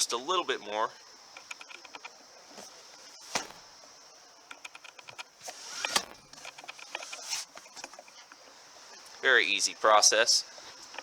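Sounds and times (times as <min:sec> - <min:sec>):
seatback thud: 0:03.2 - 0:03.7, 0:05.5 - 0:06.5.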